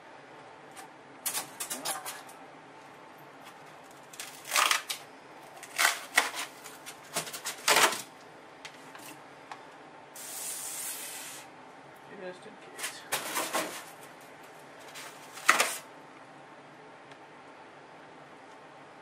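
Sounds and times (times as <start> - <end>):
styrofoam and plastic crackling: 3.5 - 8.1, 12.8 - 14.1, 14.8 - 15.9
sprayer hissing: 10.2 - 11.5.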